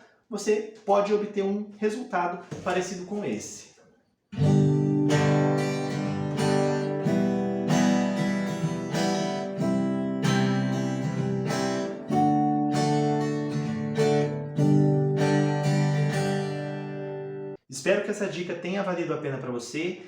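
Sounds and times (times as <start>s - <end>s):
acoustic guitar strumming chords: 4.4s - 17.6s.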